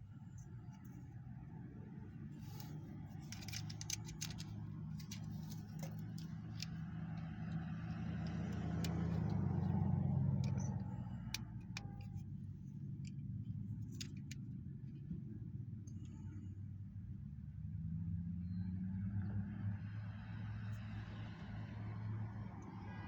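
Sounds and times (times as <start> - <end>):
vehicle engine hum: 0.0 - 23.0
plastic toy parts clicking: 2.5 - 9.8.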